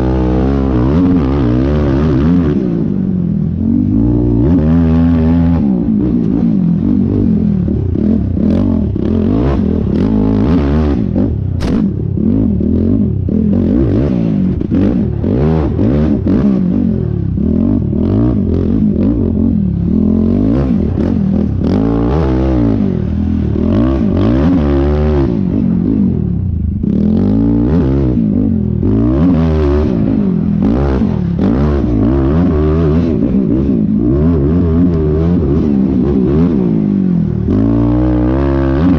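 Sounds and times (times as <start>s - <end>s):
quad bike engine revving: 0.0s - 38.9s
sharp click: 11.6s - 11.9s.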